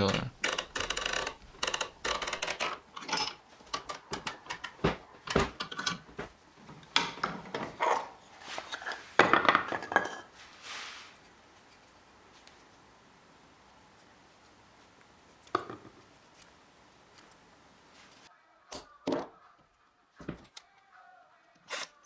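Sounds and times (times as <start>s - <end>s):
metal parts clinking: 0.0s - 8.9s.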